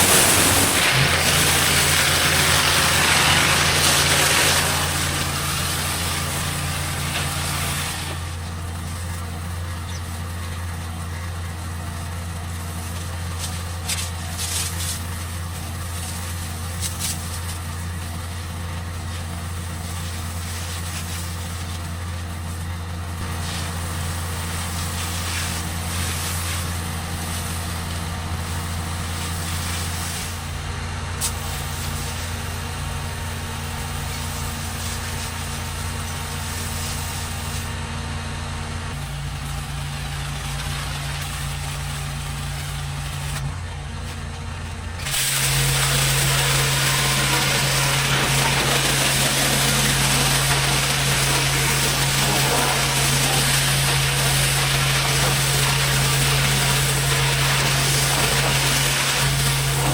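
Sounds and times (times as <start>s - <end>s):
water spray hissing: 0.0s - 8.2s, 45.0s - 59.9s
pressure washer engine running: 0.0s - 59.9s.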